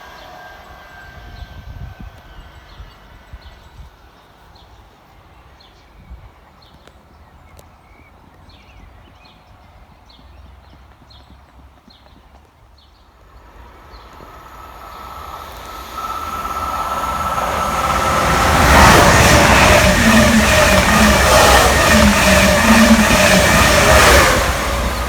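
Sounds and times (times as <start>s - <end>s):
train rumble: 13.0s - 25.0s.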